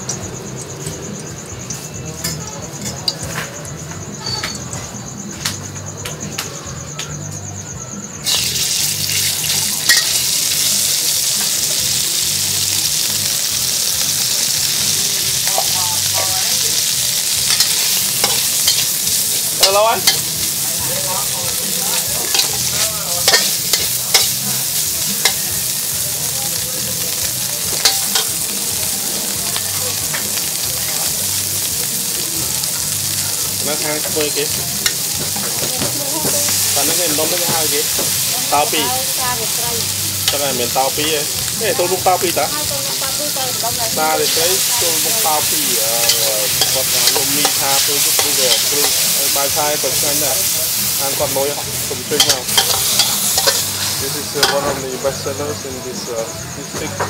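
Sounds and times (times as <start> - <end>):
meat frying in a wok: 0.0 - 2.4, 8.2 - 56.8
metal spatula scraping a wok: 16.5 - 20.6, 21.9 - 25.4, 44.2 - 54.8.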